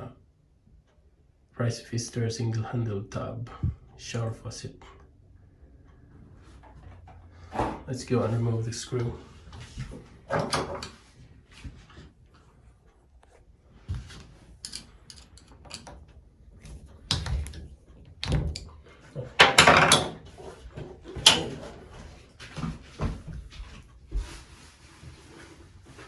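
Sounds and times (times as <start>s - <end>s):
screwdriver clicking and scraping: 14.2s - 16.0s.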